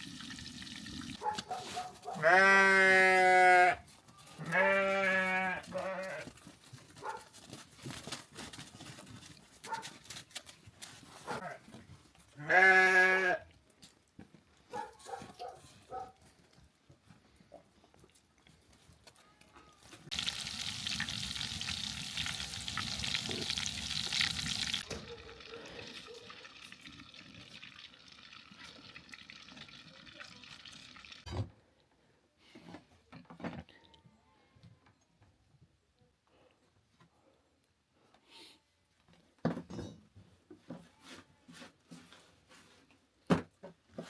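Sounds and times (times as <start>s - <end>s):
liquid pouring: 0.0s - 1.2s, 20.1s - 31.3s
thump: 31.3s - 31.6s.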